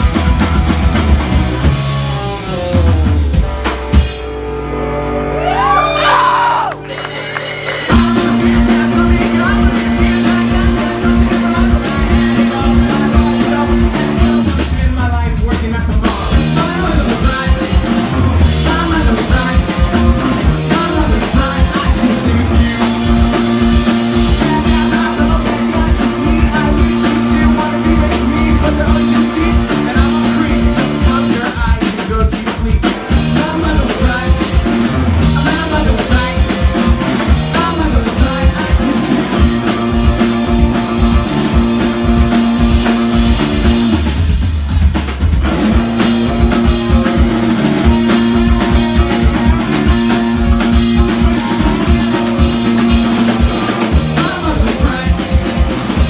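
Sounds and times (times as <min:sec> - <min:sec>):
rock band playing: 0:00.0 - 0:56.0
person singing: 0:07.8 - 0:43.1, 0:46.6 - 0:56.0.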